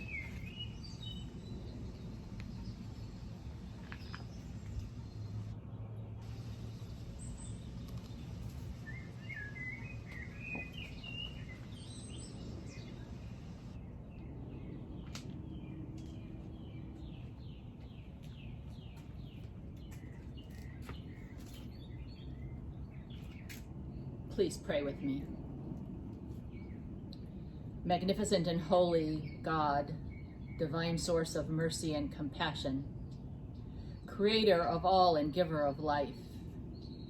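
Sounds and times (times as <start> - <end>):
birds chirping: 0.0 - 25.4
descending whistled bird notes: 8.8 - 12.9.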